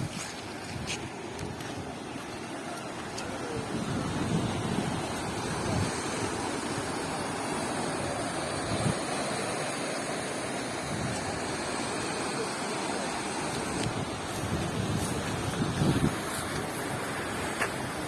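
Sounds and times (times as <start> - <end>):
wind buffeting microphone: 0.0 - 9.1, 13.6 - 18.0
floodwater rushing: 0.0 - 18.0.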